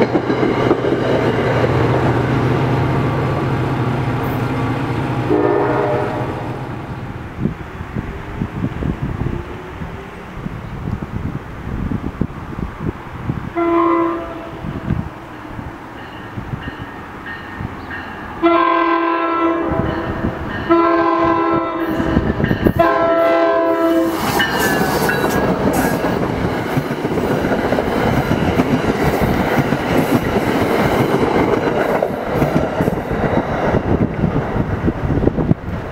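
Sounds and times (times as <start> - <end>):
train wheels rumbling and clattering: 0.0 - 5.5, 19.6 - 35.9
train horn blasts: 5.2 - 6.7, 13.6 - 15.1, 18.4 - 24.2.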